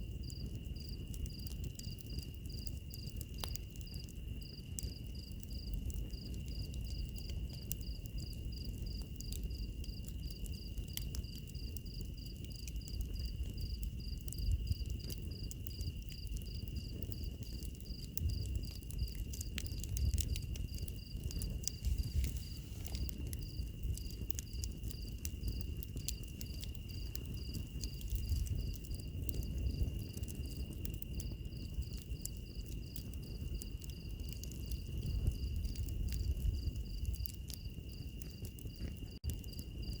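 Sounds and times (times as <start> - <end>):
wood fire crackling and popping: 0.0 - 40.0
insect chirping: 0.2 - 40.0.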